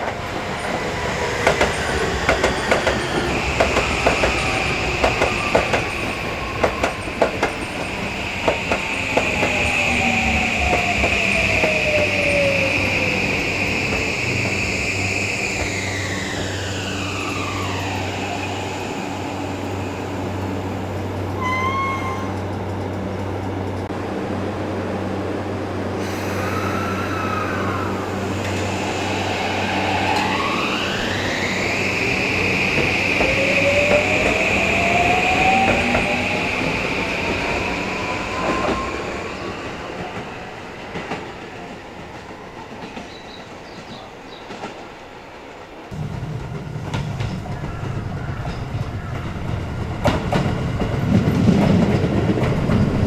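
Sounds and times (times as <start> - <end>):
train wheel clatter: 0.0 - 24.0, 45.9 - 53.0
electric train motor whining: 0.1 - 23.0, 25.5 - 40.3.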